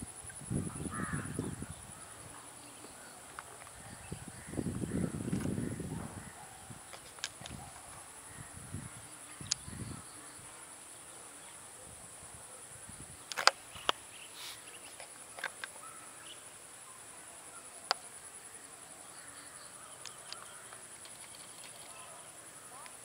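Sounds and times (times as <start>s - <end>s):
insect trilling: 12.9s - 23.0s
sharp clicks: 13.3s - 14.0s.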